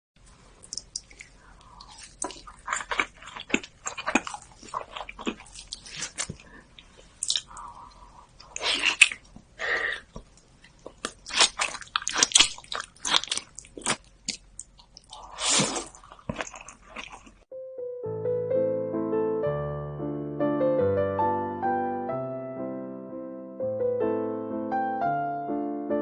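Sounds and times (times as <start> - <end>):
wet mouth clicks: 0.6 - 2.3, 7.2 - 7.7
bites and chewing: 0.6 - 17.5.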